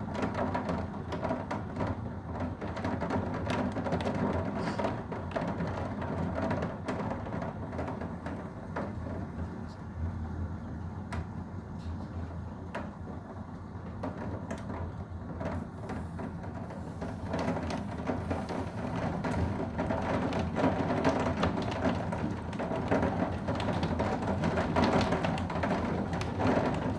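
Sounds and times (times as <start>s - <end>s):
rain: 17.0s - 26.9s
raindrops hitting surfaces: 17.0s - 26.9s.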